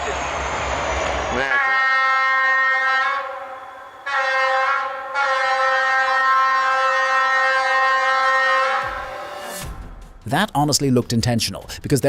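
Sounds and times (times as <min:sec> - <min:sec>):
train horn blasts: 0:01.3 - 0:09.6.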